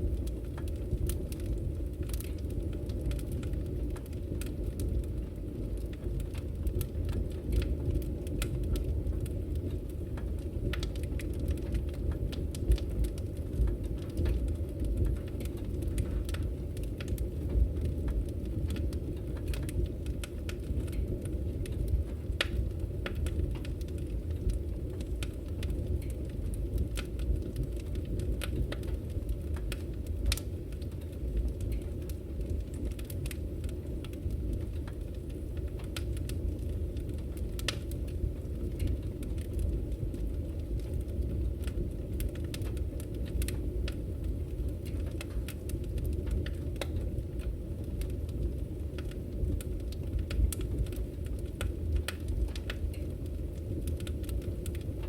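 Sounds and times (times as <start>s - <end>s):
firewood crackling: 0.0s - 55.0s.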